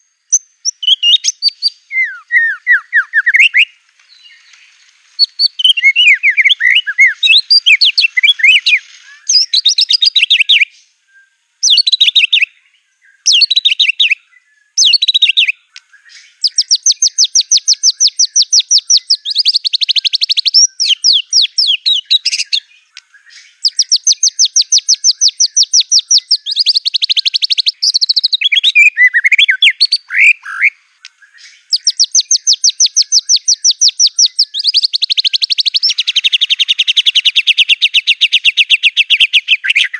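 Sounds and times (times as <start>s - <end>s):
bird singing with whistles and trills: 0.0s - 39.9s.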